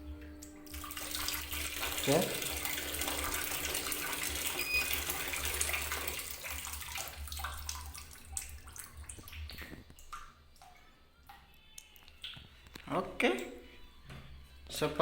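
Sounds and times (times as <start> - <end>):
water filling washing machine: 0.0 - 10.1.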